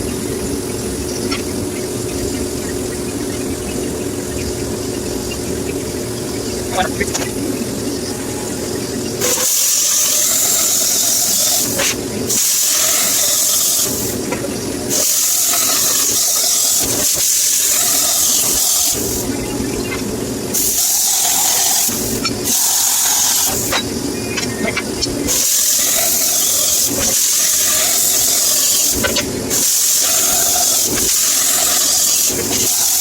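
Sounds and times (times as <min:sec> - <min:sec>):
loud hissing bursts: 0:09.2 - 0:14.2, 0:14.9 - 0:19.3, 0:20.5 - 0:23.8, 0:25.3 - 0:33.0.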